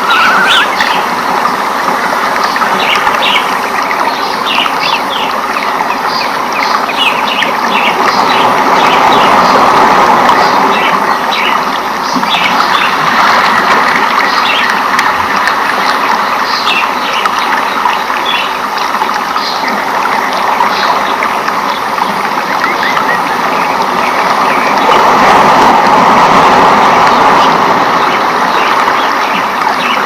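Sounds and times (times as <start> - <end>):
birds chirping: 0.0 - 1.7, 2.3 - 9.6.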